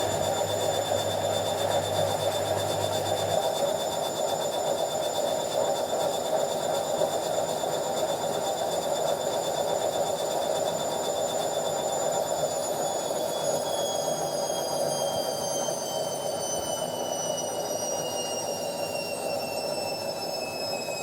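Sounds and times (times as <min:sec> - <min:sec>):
washing machine spinning: 0:00.0 - 0:03.8.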